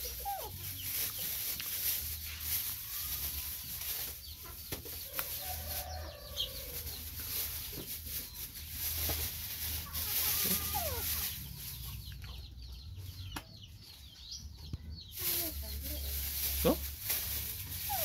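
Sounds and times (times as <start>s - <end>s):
bird clucks and chirps: 3.9s - 10.0s, 10.8s - 16.3s.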